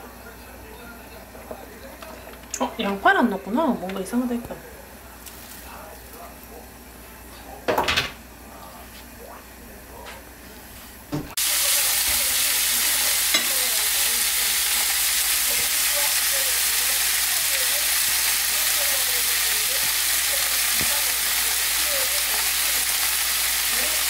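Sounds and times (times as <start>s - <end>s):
pork sizzling in a frying pan: 11.4s - 24.0s.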